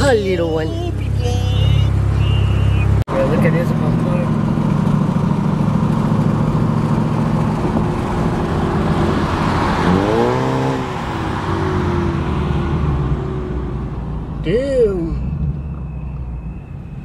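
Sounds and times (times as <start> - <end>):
car engine running: 0.0 - 16.6
car passing and accelerating: 3.2 - 14.5.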